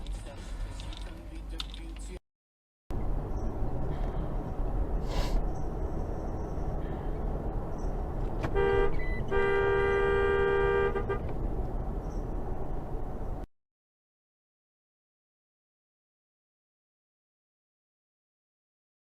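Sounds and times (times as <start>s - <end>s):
road and engine noise: 0.0s - 2.2s, 2.9s - 13.5s
car horn honking: 8.4s - 11.4s.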